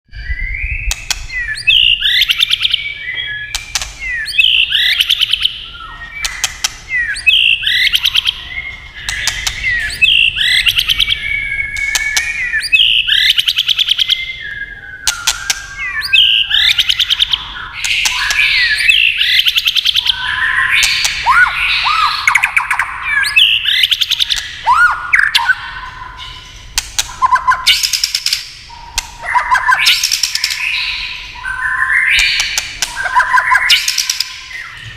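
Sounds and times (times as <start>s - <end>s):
bird singing whistled phrases: 0.1s - 34.9s
bird ticking clicks: 3.5s - 5.4s, 6.2s - 8.2s, 9.0s - 10.7s, 11.8s - 12.8s, 26.8s - 30.6s.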